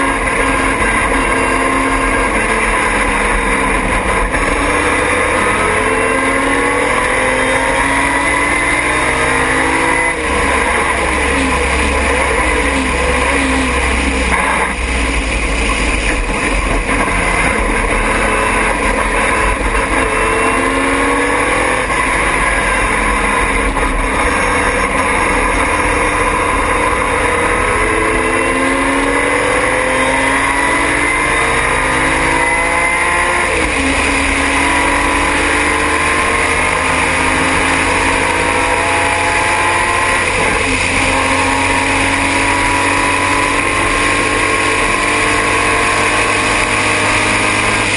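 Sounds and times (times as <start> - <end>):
heavy low rumble: 0.0 - 7.0, 10.0 - 32.3
race car engine revving and shifting: 0.0 - 47.9.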